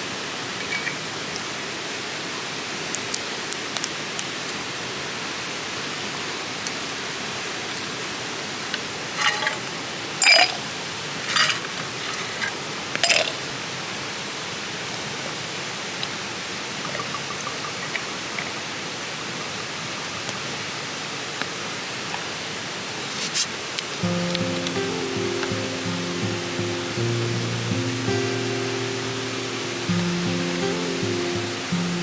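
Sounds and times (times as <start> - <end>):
stream rushing: 20.8 - 32.0
background music: 24.0 - 32.0.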